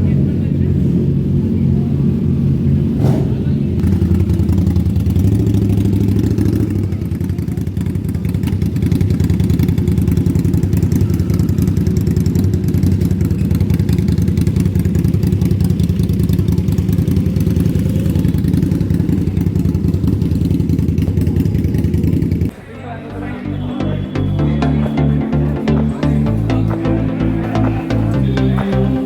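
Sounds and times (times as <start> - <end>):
motorcycle engine idling: 0.0 - 22.5.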